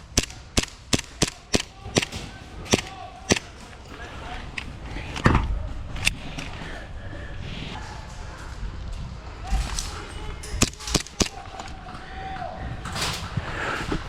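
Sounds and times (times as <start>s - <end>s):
airsoft gun firing shots: 0.0s - 3.5s, 10.6s - 11.4s.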